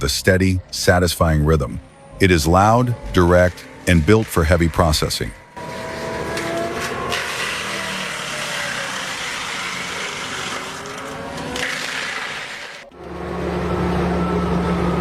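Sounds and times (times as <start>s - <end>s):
faint sliding whines: 1.8s - 15.0s
wood-processing machine running: 2.1s - 15.0s.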